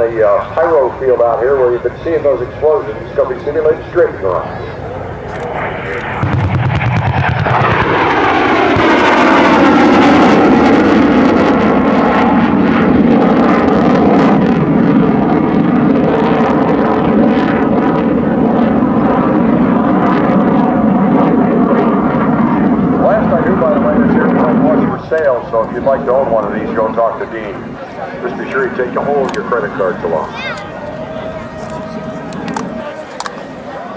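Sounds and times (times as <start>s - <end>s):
jet roaring past: 0.0s - 33.9s.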